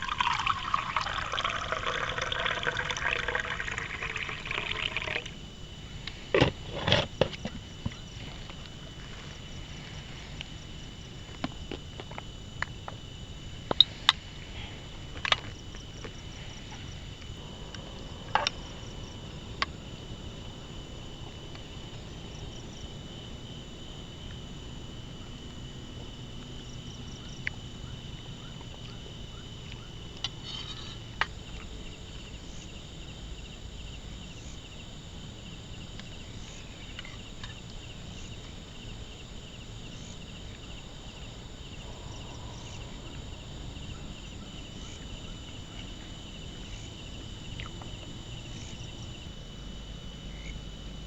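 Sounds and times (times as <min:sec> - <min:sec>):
insects chirring: 0:00.0 - 0:51.0
low wind rumble: 0:14.3 - 0:28.4, 0:38.0 - 0:46.6.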